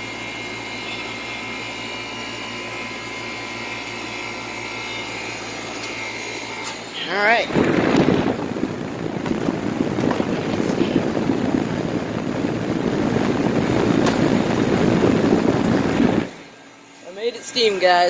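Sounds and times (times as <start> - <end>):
air conditioner fan running: 0.0 - 18.0
air rushing over microphone: 7.3 - 16.5.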